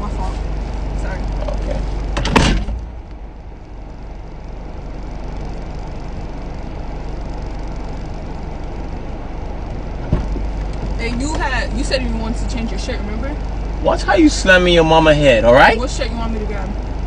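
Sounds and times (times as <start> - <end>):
car engine idling: 0.0 - 17.0
short knock: 10.0 - 10.4.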